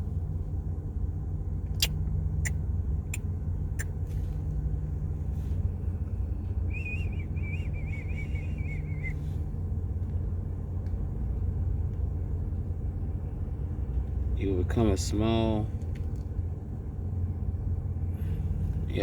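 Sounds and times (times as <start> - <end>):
steady low rumble: 0.0 - 19.0
wavering high whistle: 6.7 - 9.3.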